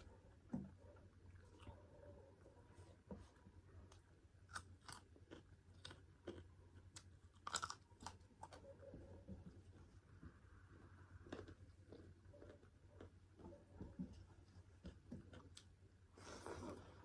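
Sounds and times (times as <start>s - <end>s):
chewing crunches and mouth clicks: 3.9s - 8.6s, 11.1s - 13.5s, 14.5s - 15.8s.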